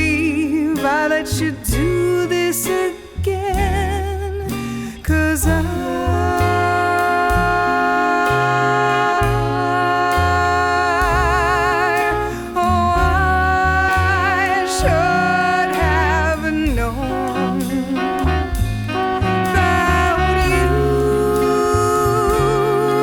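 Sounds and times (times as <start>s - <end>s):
swing jazz band playing: 0.0s - 23.0s
horn melody with vibrato: 5.4s - 23.0s.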